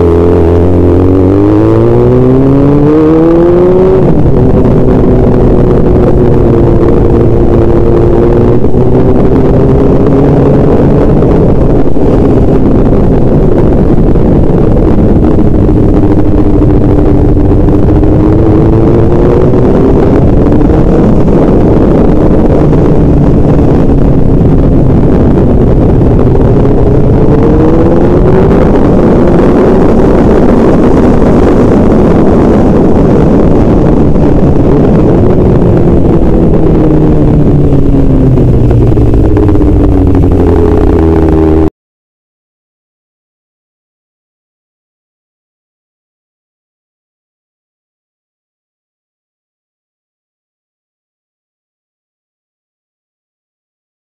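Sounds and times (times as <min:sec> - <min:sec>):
vehicle engine running: 0:00.0 - 0:41.7
road and wind noise: 0:00.0 - 0:41.8.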